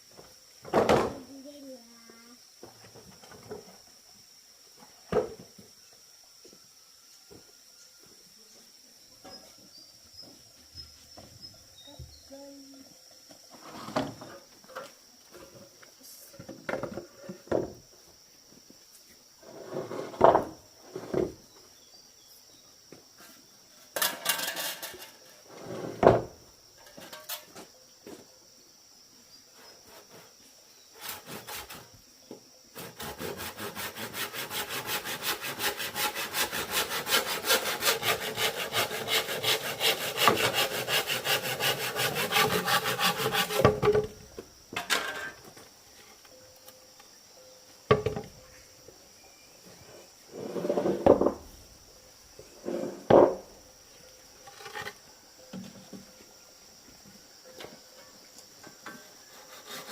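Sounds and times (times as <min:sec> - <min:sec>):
hand saw cutting bamboo: 0:31.0 - 0:31.9, 0:32.7 - 0:44.0, 0:59.3 - 0:59.9
knocks of bamboo being handled: 0:42.2 - 0:45.6.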